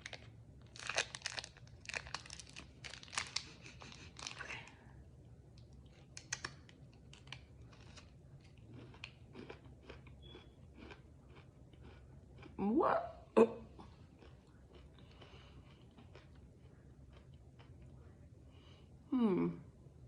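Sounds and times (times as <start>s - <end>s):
snack bag crinkling and rustling: 0.0s - 4.6s, 5.6s - 9.6s
popcorn crunching being eaten: 0.0s - 4.7s, 5.6s - 12.6s, 14.1s - 18.1s.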